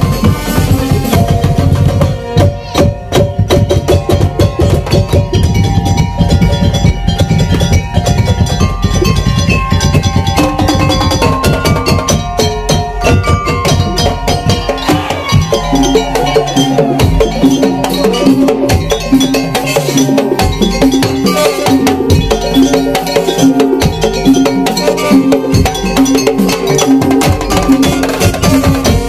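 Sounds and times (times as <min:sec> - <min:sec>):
melody of held notes: 0:00.0 - 0:29.0
percussion ensemble drumming: 0:00.0 - 0:29.0.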